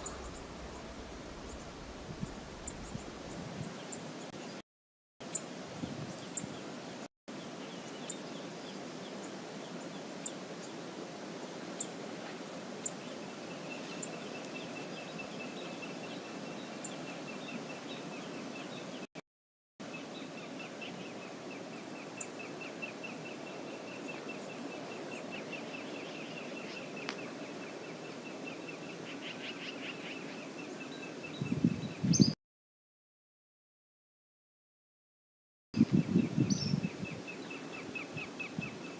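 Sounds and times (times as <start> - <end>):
low thuds: 0.0 - 3.4.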